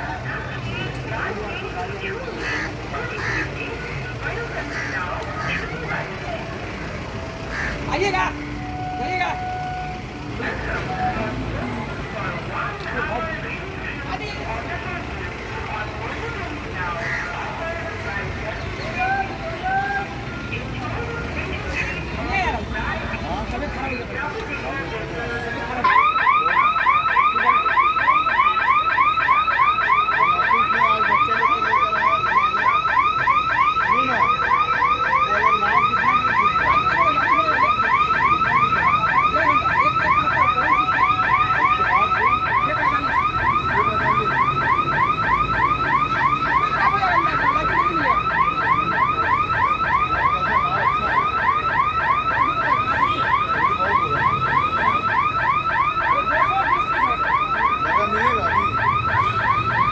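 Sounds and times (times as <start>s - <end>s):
alarm siren warbling chirps: 4.7s - 12.5s, 25.4s - 59.9s.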